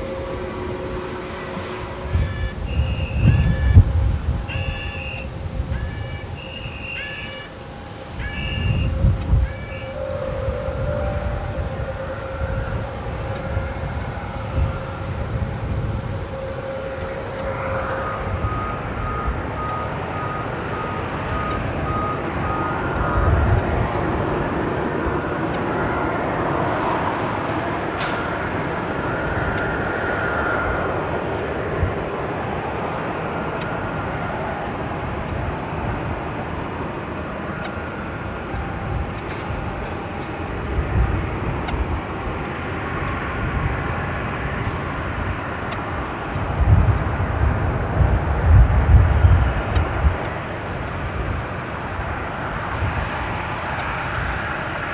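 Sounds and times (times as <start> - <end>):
jet engines running: 0.0 - 18.6.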